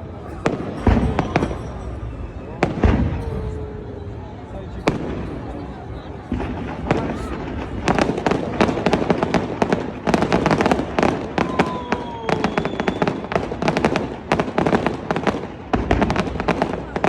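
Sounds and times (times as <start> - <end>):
fireworks bangs and crackles: 0.0 - 17.0
falling firework whistle: 11.3 - 13.6.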